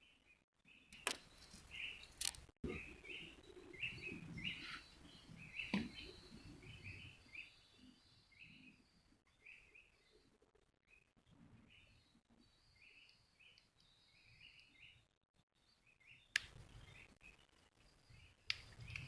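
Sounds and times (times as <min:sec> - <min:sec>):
bird chirping: 0:00.0 - 0:19.0
sharp clicks: 0:16.4 - 0:16.6.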